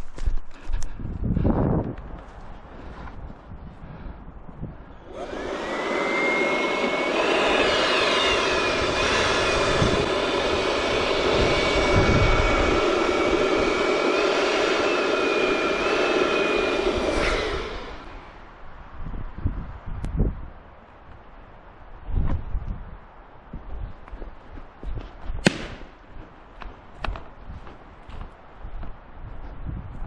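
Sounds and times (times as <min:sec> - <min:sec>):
electric air pump motor whine: 0:04.9 - 0:18.4
air rushing: 0:05.0 - 0:18.6.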